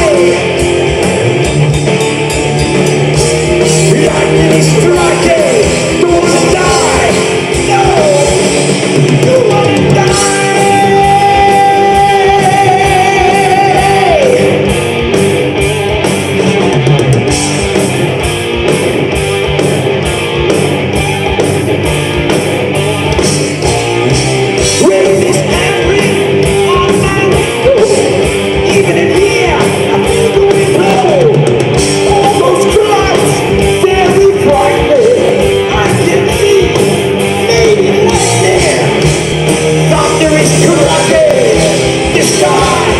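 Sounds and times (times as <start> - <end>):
drums: 0.0 - 42.9
electric guitars: 0.0 - 42.9
person singing: 3.6 - 14.6, 24.7 - 39.1, 39.9 - 42.9.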